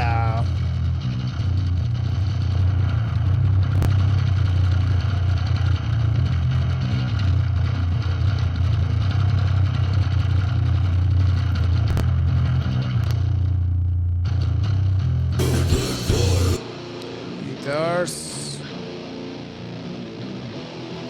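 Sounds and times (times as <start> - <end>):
death metal music: 15.4 - 20.9.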